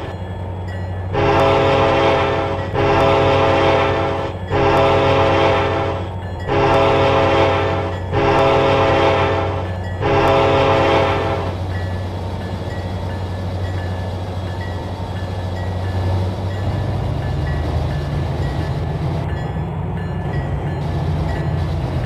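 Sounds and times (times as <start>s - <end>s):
locomotive engine rumble: 0.0s - 22.0s
locomotive air horn blasts: 1.1s - 11.6s.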